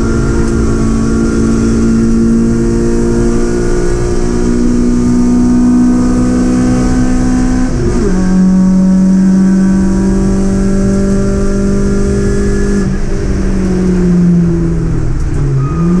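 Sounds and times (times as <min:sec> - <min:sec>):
car engine at high revs: 0:00.0 - 0:16.0.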